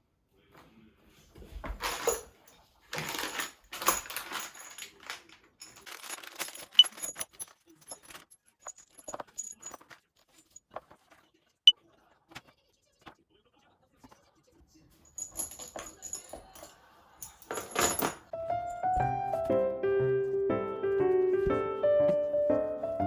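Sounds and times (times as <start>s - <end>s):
light metallic jingling: 3.4s - 10.6s, 15.1s - 18.9s.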